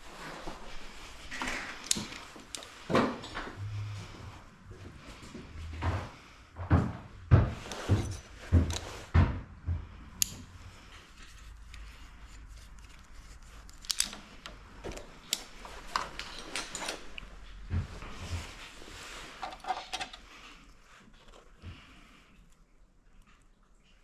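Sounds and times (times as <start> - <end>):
sharp clicks of metal parts: 1.4 - 2.8, 10.1 - 10.6, 12.5 - 17.2, 19.4 - 20.2
tools knocking and thudding: 6.8 - 10.4.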